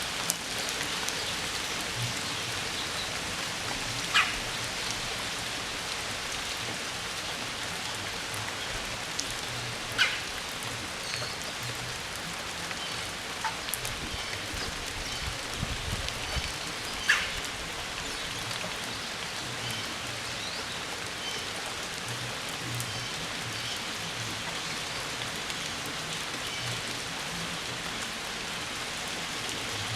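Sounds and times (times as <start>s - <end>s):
rain-like hiss: 0.0s - 29.9s
woodpecker rolling calls: 4.1s - 4.4s, 10.0s - 10.3s.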